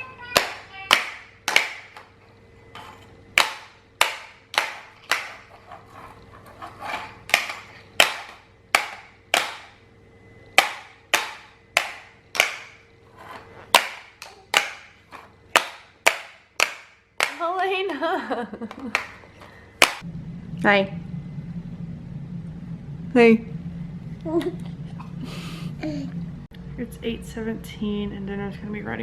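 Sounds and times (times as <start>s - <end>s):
plastic toy banging on hard surface: 3.4s - 5.6s, 7.3s - 9.7s, 10.6s - 12.8s, 13.7s - 17.4s.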